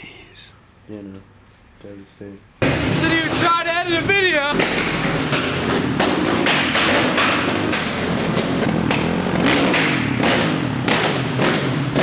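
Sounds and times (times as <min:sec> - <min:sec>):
motorcycle engine running: 0:04.4 - 0:12.0.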